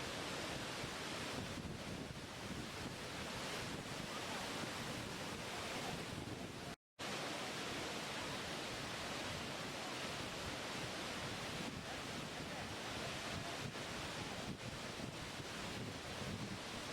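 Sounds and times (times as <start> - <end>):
water rushing: 0.0 - 16.9.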